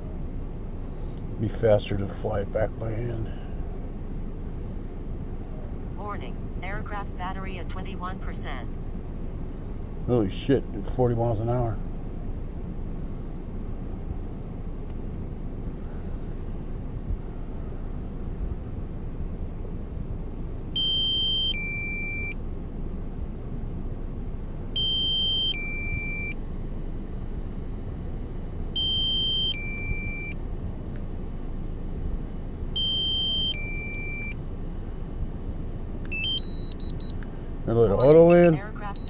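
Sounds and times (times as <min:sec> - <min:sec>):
low wind rumble: 0:00.0 - 0:39.0
two-tone warning beeps: 0:20.8 - 0:22.4, 0:24.8 - 0:26.4, 0:28.8 - 0:30.4, 0:32.8 - 0:34.4, 0:36.1 - 0:37.2, 0:37.9 - 0:39.0.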